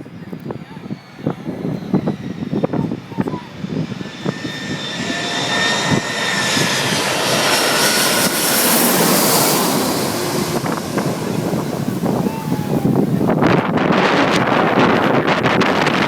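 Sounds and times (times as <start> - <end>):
jet airliner engines roaring: 0.0 - 16.0
thin jet engine whine: 0.0 - 16.0.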